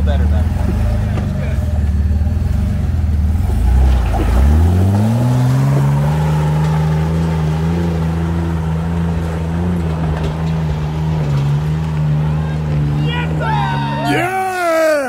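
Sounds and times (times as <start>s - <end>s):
engine revving hard: 2.6s - 9.2s.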